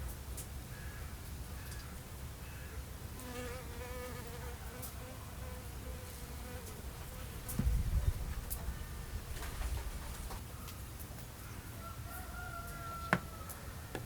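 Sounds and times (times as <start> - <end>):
flying insect buzzing: 3.2 - 7.8
low thump: 7.5 - 8.1.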